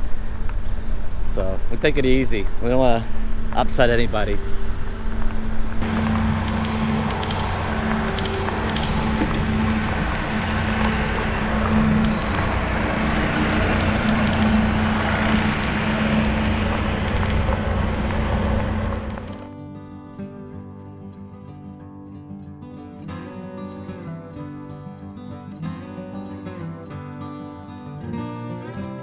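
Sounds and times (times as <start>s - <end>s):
tyres rolling on trail: 0.0s - 19.3s
electric motor hum: 0.0s - 19.4s.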